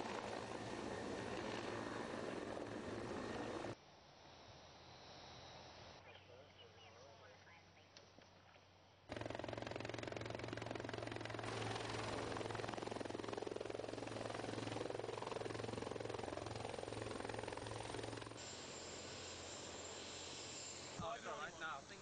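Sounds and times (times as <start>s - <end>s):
helicopter rotor and engine: 0.0s - 3.8s, 9.1s - 22.0s.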